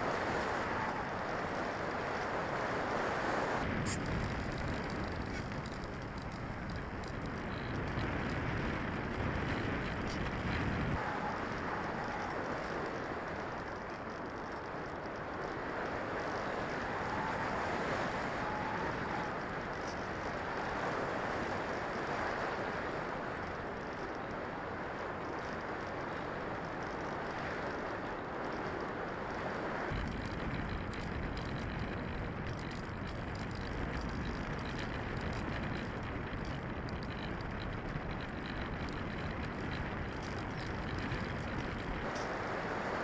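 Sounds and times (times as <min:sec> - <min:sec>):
wind noise on microphone: 0:00.0 - 0:43.0
deep low rumble: 0:03.6 - 0:14.4, 0:29.9 - 0:42.2.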